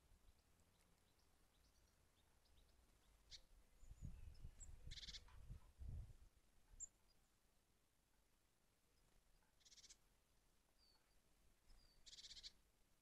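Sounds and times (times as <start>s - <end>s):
short high bird chirps: 4.8s - 5.3s.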